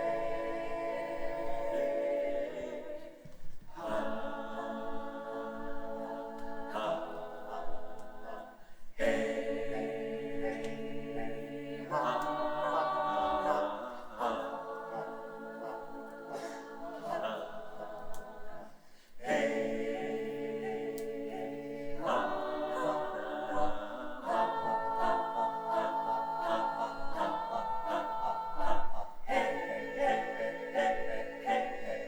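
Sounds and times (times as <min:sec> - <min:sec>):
choir singing unaccompanied: 0:00.0 - 0:32.0.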